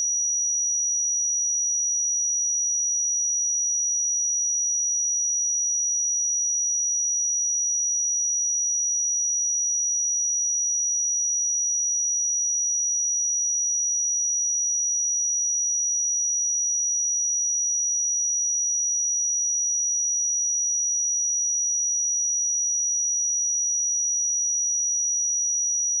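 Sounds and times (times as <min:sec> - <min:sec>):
high-pitched sine test tone: 0:13.0 - 0:26.0.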